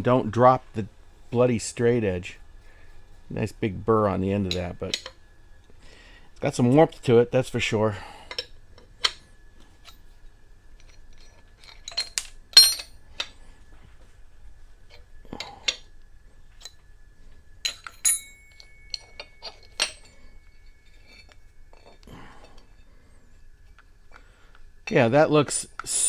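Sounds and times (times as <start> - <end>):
metal tools clinking on cast iron: 10.8 - 13.0, 17.6 - 22.7
metallic ringing tone: 12.6 - 13.0, 17.6 - 23.6.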